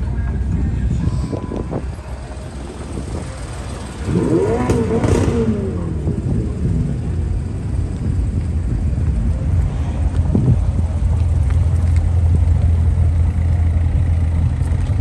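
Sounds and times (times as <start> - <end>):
low engine rumble: 0.0 - 15.0
sports car engine revving: 2.5 - 7.9.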